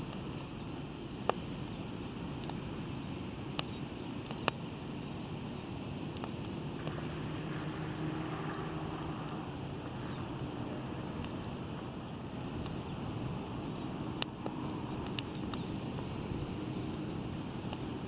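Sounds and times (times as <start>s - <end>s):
bonfire crackling: 0.0s - 18.0s
faint steady hum: 0.0s - 18.0s
sharp pops of fire: 0.0s - 18.0s
low rumble: 6.6s - 17.3s.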